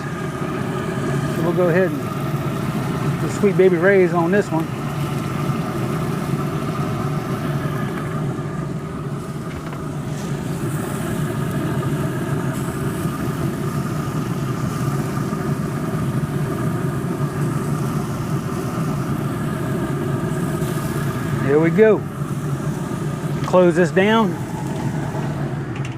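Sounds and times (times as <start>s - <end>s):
motor droning at idle: 0.0s - 25.9s.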